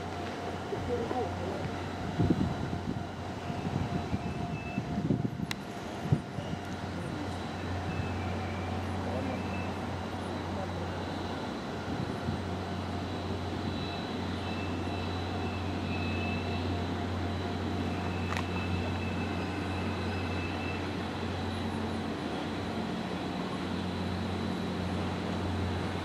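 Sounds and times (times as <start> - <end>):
faint high whining tones: 0.0 - 26.0
low hum of standing train: 0.0 - 26.0.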